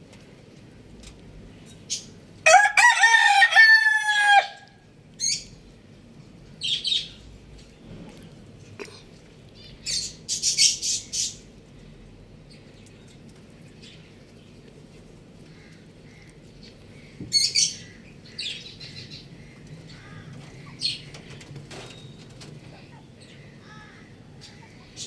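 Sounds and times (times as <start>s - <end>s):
low steady background hum: 0.0s - 25.0s
birds chirping and squawking: 9.6s - 11.5s, 15.4s - 25.0s.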